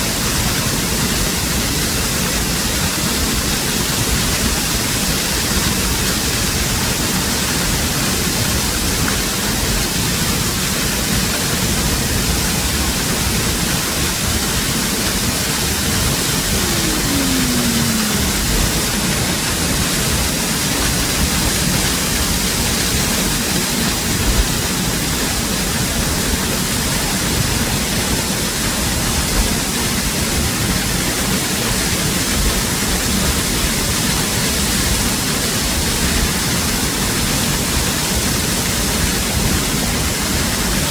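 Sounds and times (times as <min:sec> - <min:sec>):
waterfall rushing: 0:00.0 - 0:40.9
short falling tone: 0:16.4 - 0:19.4.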